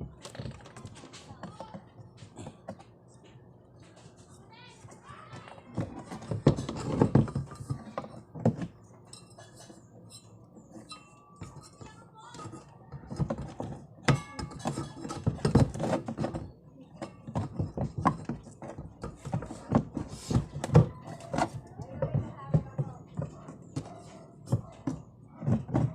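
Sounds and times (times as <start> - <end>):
hard objects clinking: 5.7 - 20.0.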